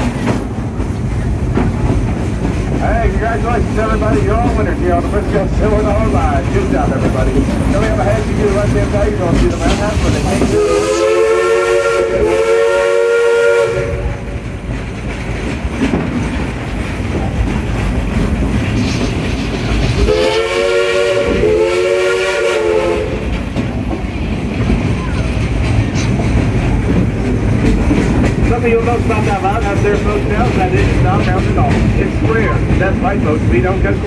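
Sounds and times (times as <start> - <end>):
train rumbling on track: 0.0 - 34.0
steam locomotive chime whistle: 10.4 - 14.2, 20.1 - 23.3.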